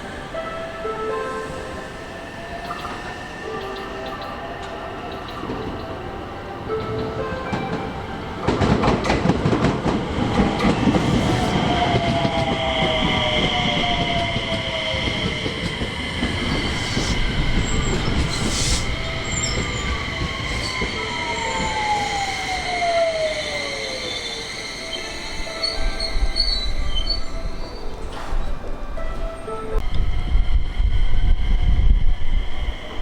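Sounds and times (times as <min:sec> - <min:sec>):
wheel squeal: 0:16.4 - 0:27.9.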